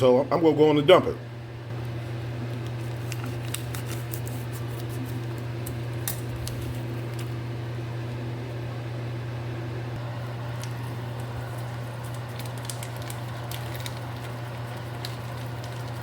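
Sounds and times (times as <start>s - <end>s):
low electric hum: 0.0s - 16.0s
food crackling in a pan: 10.0s - 16.0s.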